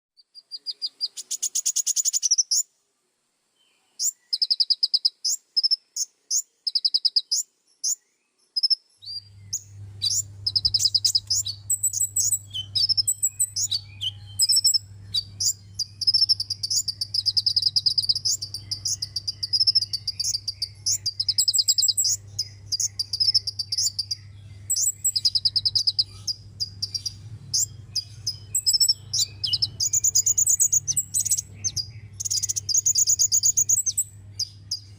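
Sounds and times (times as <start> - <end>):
bird trilling and chirping: 0.2 - 2.7, 4.0 - 34.9
low hum: 9.2 - 34.9.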